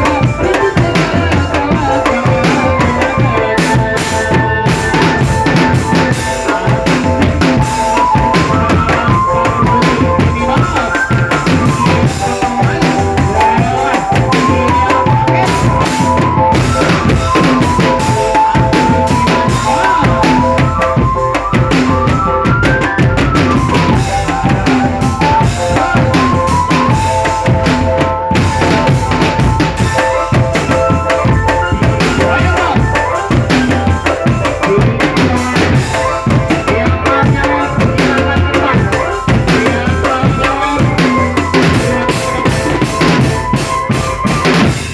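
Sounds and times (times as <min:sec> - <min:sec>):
bass and snare drums: 0:00.0 - 0:44.9
marching band melody: 0:00.0 - 0:44.9.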